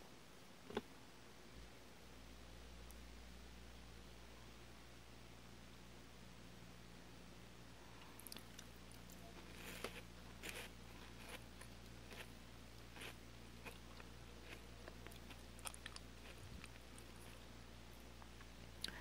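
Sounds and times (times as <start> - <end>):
low electrical hum: 0.0 - 19.0
chewing and crunching wafer: 8.0 - 17.5.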